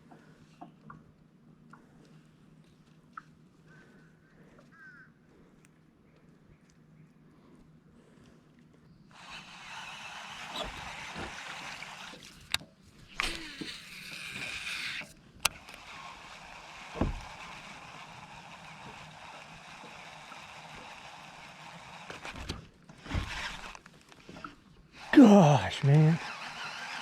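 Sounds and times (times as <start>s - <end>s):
water sloshing and splashing: 8.0s - 17.8s
dull thump: 10.5s - 11.7s, 17.0s - 17.3s.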